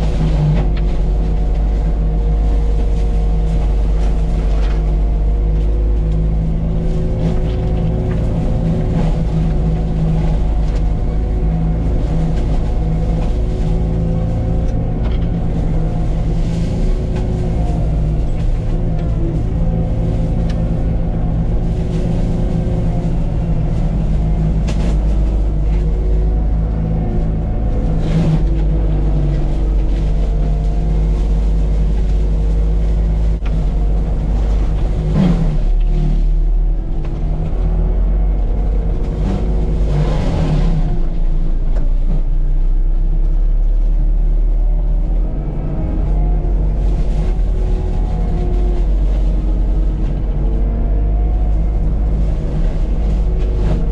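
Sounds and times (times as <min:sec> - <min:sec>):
mulcher head whining: 0:00.0 - 0:42.3
diesel engine running hard: 0:00.0 - 0:53.9.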